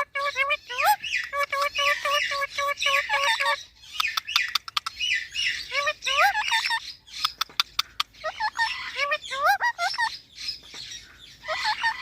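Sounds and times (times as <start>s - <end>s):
parrot calling: 0.0s - 12.0s
sharp clicks: 7.2s - 7.9s.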